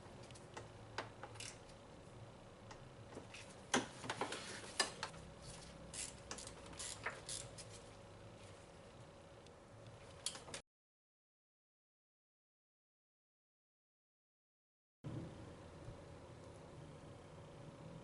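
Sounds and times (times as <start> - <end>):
faint steady hum: 0.0 - 10.6, 15.1 - 18.0.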